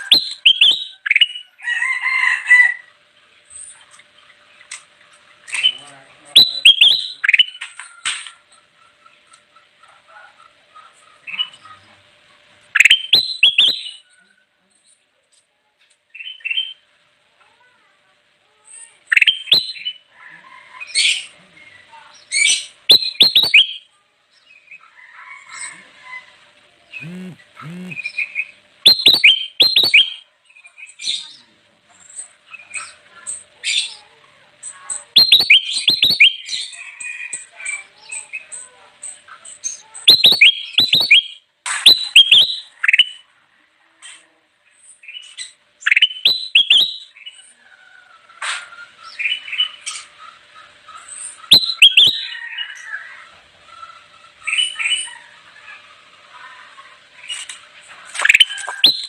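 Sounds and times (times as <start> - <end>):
soft bird twittering: 22.2 - 23.9, 27.0 - 30.2, 35.2 - 36.8, 40.0 - 43.2, 51.3 - 52.4
bulbul chirping: 22.9 - 23.8, 27.0 - 28.2, 28.8 - 30.2, 35.2 - 36.5, 40.1 - 42.5, 51.5 - 52.2, 58.2 - 59.0.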